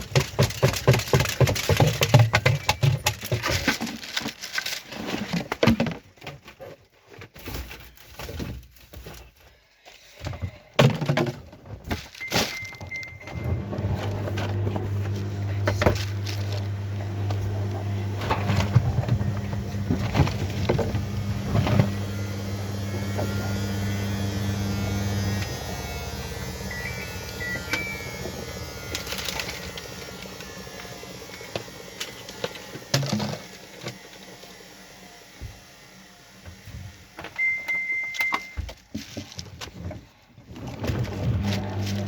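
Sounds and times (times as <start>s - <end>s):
washing machine humming: 0.0s - 3.6s, 12.2s - 38.8s, 40.5s - 42.0s
long electronic beep: 25.4s - 29.1s, 37.4s - 38.6s
short electronic beeps: 26.7s - 28.3s, 37.4s - 38.6s.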